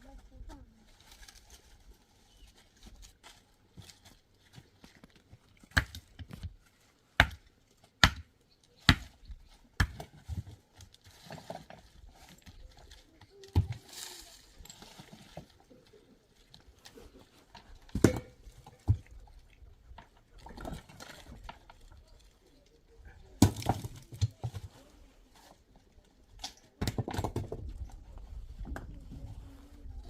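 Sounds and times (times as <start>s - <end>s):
stones clacking against stone: 23.4s - 24.7s.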